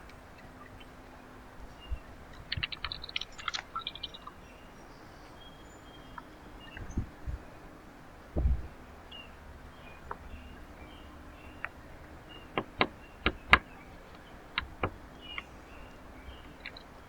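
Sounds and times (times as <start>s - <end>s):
birds tapping at feeder: 0.0s - 17.0s
faint bird chirps: 0.1s - 17.0s.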